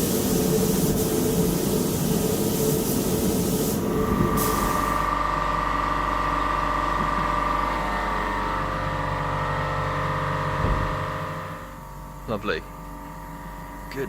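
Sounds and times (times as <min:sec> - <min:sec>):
spray gun hiss: 0:00.0 - 0:05.1
air compressor motor whining: 0:03.8 - 0:14.0.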